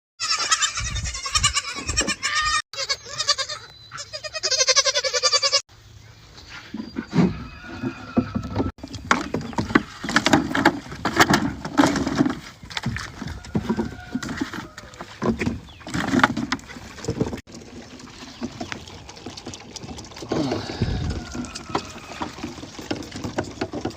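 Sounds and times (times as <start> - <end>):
goats bleating: 0.2 - 5.6, 20.4 - 22.6.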